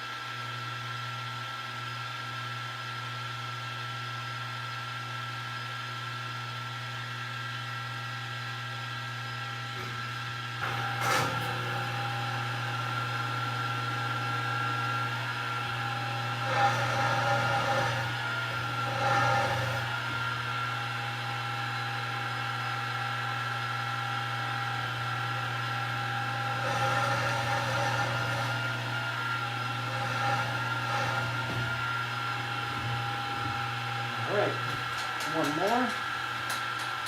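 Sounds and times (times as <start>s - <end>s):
milling machine motor whine: 0.2s - 37.0s
drill bit cutting steel: 14.1s - 20.0s, 25.0s - 34.7s.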